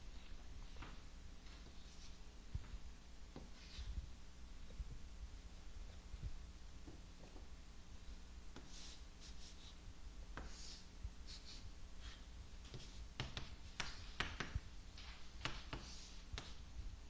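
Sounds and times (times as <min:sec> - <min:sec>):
low electrical hum: 0:00.0 - 0:17.0
writing tool tapping: 0:12.7 - 0:14.6.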